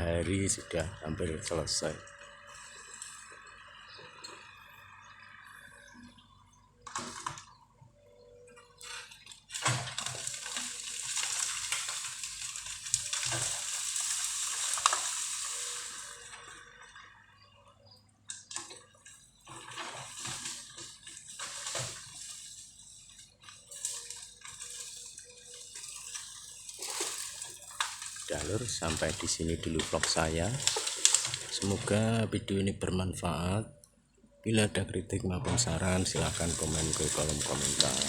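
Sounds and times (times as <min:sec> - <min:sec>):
bamboo leaves and stems rushing: 0:09.5 - 0:16.8, 0:18.6 - 0:32.2, 0:35.6 - 0:38.0
bamboo snapping: 0:23.7 - 0:31.9.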